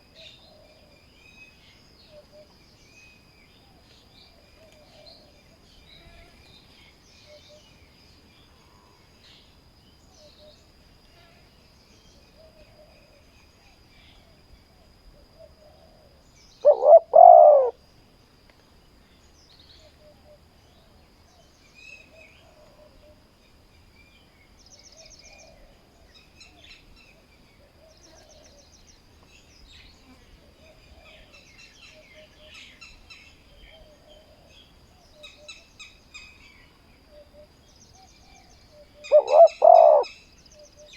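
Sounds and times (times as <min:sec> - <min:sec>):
doves cooing: 0:15.4 - 0:17.8, 0:38.3 - 0:40.9.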